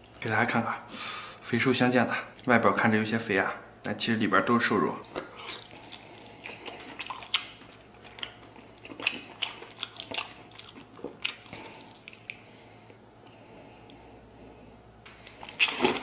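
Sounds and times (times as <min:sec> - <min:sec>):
man chewing meat: 0:05.0 - 0:16.0.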